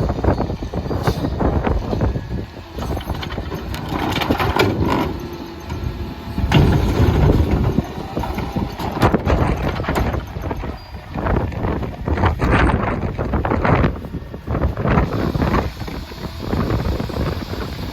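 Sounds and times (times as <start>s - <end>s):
wind buffeting microphone: 0.0s - 17.9s
garbage truck clattering knocks: 6.3s - 11.4s.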